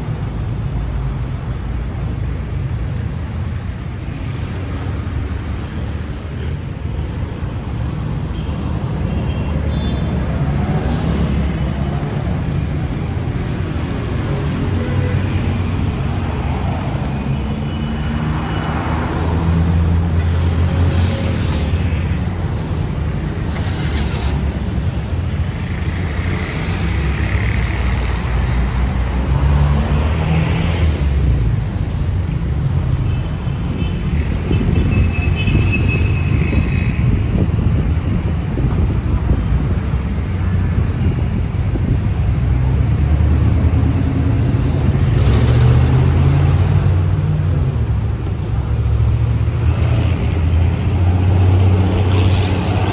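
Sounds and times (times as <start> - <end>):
vehicles passing: 0.0 - 52.9.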